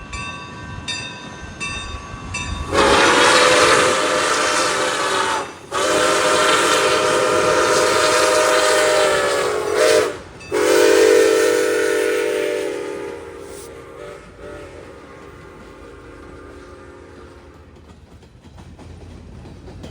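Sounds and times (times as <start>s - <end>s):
locomotive air horn blasts: 2.7s - 17.8s.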